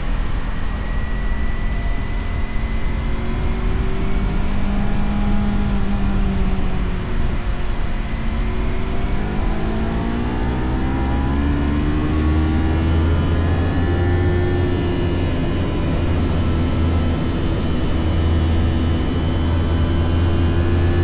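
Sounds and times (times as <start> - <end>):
motorcycle engine accelerating: 1.7 - 21.0.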